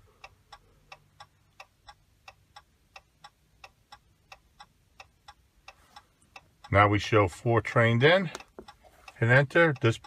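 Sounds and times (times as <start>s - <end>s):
hazard light flasher ticking: 0.0s - 7.2s.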